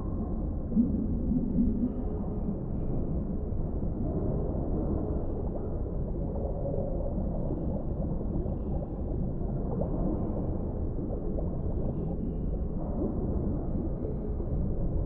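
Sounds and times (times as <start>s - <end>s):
low underwater rumble: 0.0s - 15.0s.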